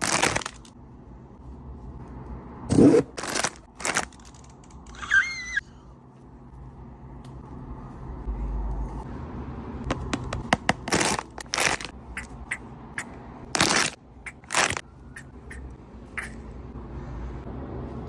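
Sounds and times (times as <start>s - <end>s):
packaging crackling and rustling: 0.0s - 0.7s, 3.2s - 4.5s, 10.9s - 11.9s, 13.6s - 14.8s
steady low hum: 0.0s - 3.8s, 5.6s - 18.0s.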